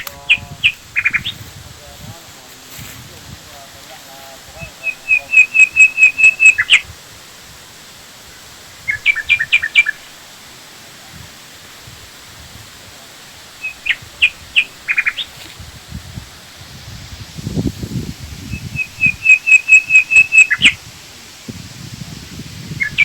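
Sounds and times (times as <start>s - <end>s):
songbird singing high notes: 4.6s - 6.9s, 8.9s - 10.2s, 13.5s - 15.3s, 18.4s - 20.8s, 22.8s - 23.0s.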